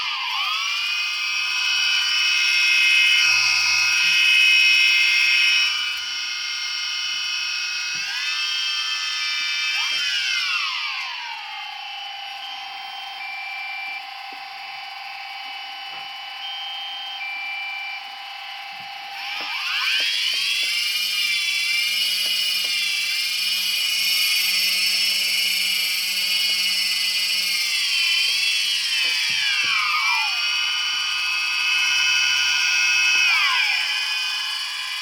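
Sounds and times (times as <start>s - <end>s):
drone propellers whining: 0.0s - 35.0s.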